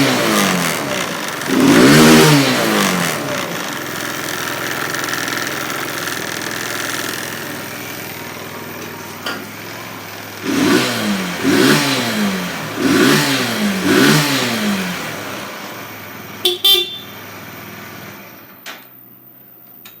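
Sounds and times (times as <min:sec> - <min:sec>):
motorcycle engine idling and revving: 0:00.0 - 0:19.1
motorcycle horn beeps: 0:16.4 - 0:17.3.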